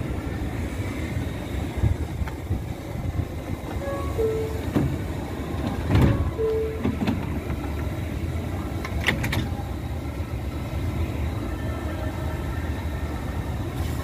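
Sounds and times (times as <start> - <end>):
subway train low rumble: 0.0 - 14.0
short chime tone: 3.8 - 4.7.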